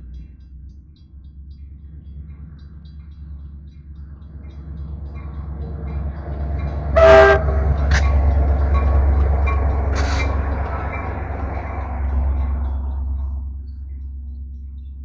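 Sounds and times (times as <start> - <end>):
train rumbling past: 2.3 - 14.1
train horn blast: 6.7 - 10.6.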